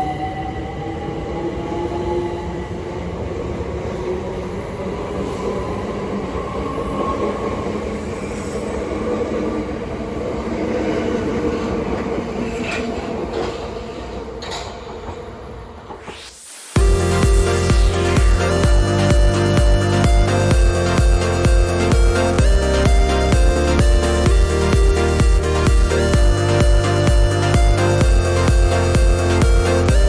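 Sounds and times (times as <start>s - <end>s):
wheels rumbling on rails: 3.2s - 16.2s.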